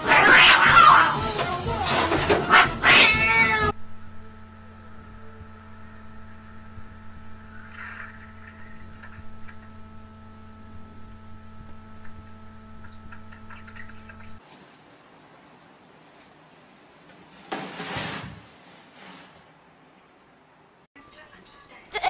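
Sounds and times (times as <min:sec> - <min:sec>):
cat yowling: 0:00.0 - 0:01.2, 0:02.5 - 0:03.8
quiet steady hum: 0:03.7 - 0:17.3.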